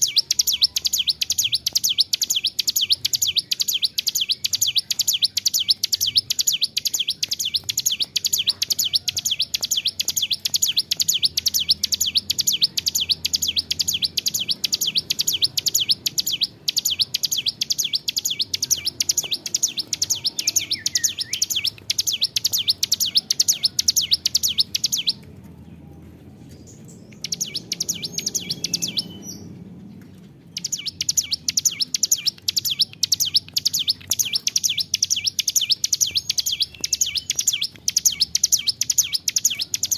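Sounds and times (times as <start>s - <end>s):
bird rapid high chirping: 0.0s - 25.3s, 26.5s - 39.9s.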